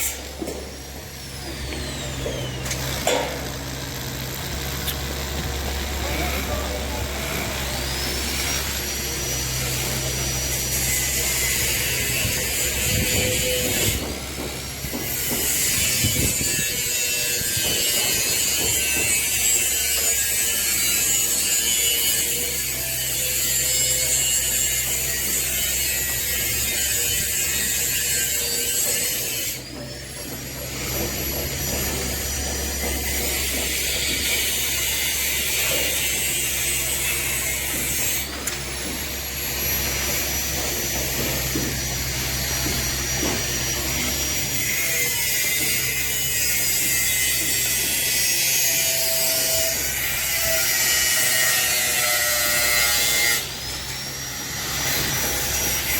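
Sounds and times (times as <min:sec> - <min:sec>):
excavator engine drone: 0:00.8 - 0:11.4.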